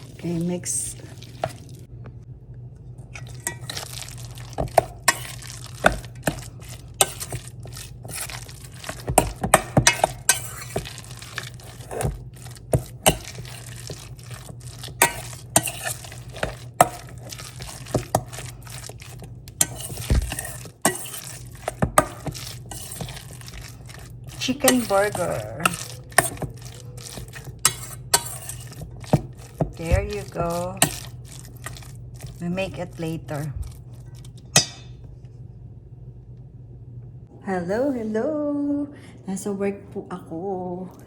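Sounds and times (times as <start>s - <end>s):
steady low hum: 0.0s - 41.0s
utensil clinking against bowl: 3.2s - 35.0s.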